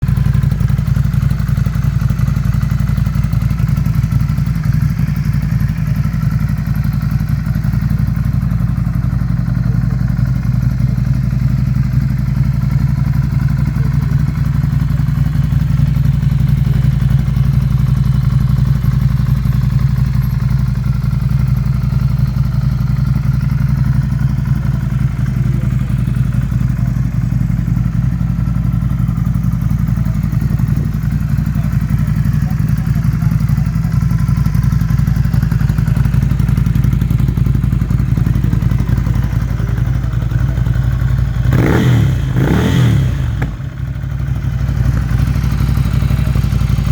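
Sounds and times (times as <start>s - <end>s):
motorcycle engine idling: 0.0s - 46.9s.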